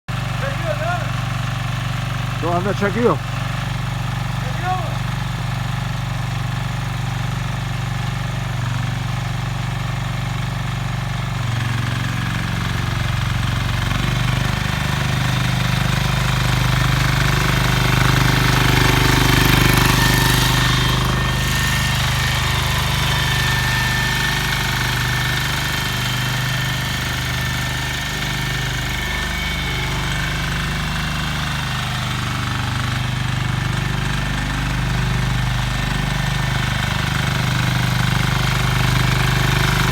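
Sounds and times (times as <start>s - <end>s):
rotary tiller engine rattling: 0.1s - 39.9s.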